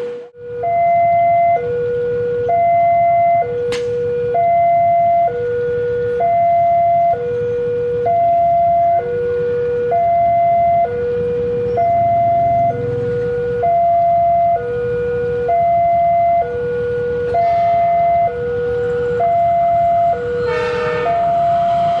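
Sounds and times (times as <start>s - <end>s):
level crossing two-tone alarm: 0.0s - 22.0s
low rumble of waiting traffic: 0.0s - 22.0s
sharp click: 3.7s - 4.0s.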